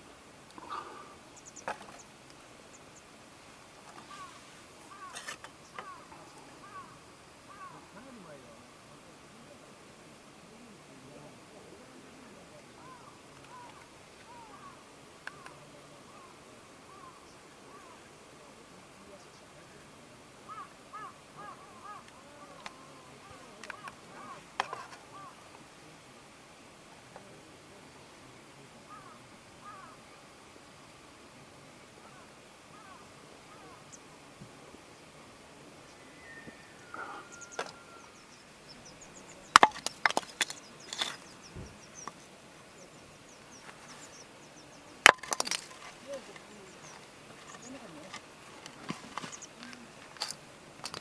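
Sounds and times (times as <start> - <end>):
crow cawing: 4.0 - 8.0, 12.8 - 15.5, 16.9 - 18.0, 20.5 - 25.4, 28.9 - 30.0, 32.0 - 33.8
wood being chopped: 39.6 - 41.7, 45.1 - 46.0.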